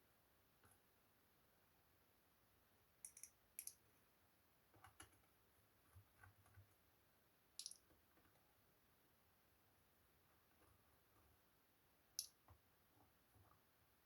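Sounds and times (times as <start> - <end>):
faint sharp clicks: 3.0 - 3.8, 7.6 - 7.9, 12.2 - 12.4.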